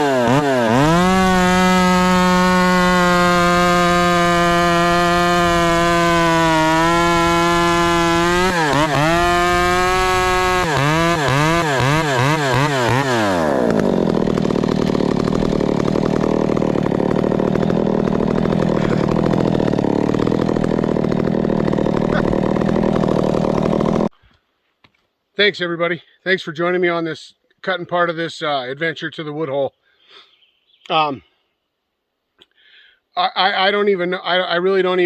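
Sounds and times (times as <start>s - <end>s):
chainsaw revving: 0.0s - 24.1s.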